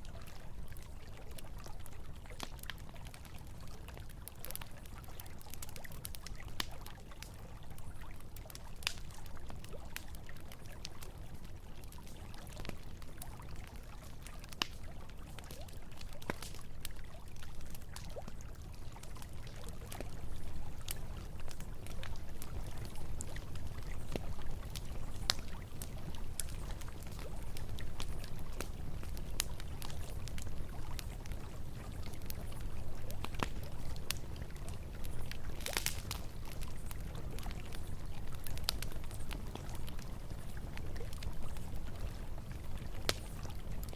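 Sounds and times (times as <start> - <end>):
campfire crackling and popping: 0.0 - 43.9.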